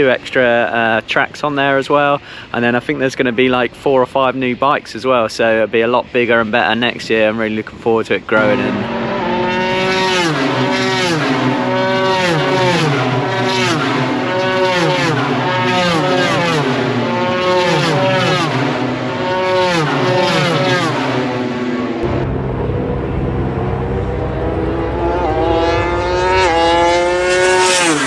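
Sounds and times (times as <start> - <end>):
racing motorcycles passing: 8.3 - 28.0.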